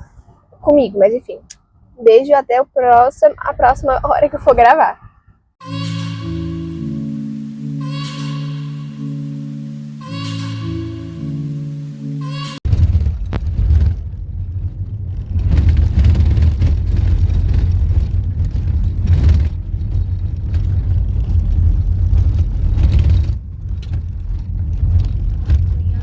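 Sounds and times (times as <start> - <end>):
road hiss: 5.6 - 12.6
car cabin road rumble: 11.6 - 26.0.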